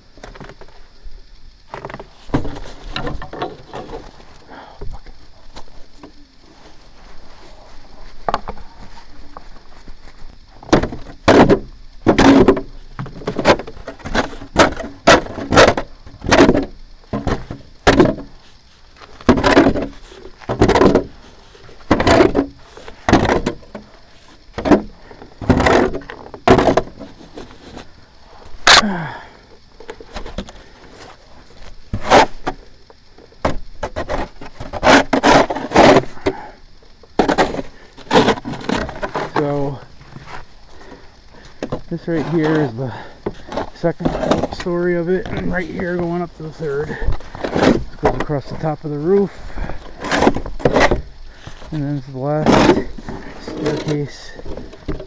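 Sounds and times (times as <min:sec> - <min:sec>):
snow shovel scraping steps: 0:30.1 - 0:32.6, 0:33.9 - 0:36.2, 0:37.2 - 0:41.0, 0:42.0 - 0:54.4.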